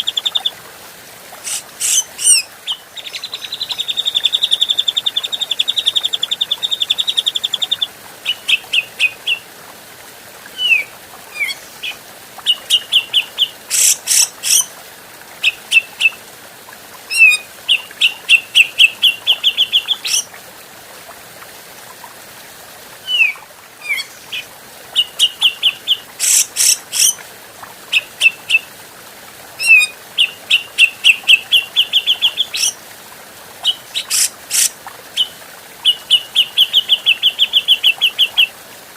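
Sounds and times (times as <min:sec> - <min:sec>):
bird scratchy calls: 0:01.4 - 0:02.4, 0:26.2 - 0:27.1, 0:34.0 - 0:34.7
bird chattering song: 0:25.2 - 0:27.2.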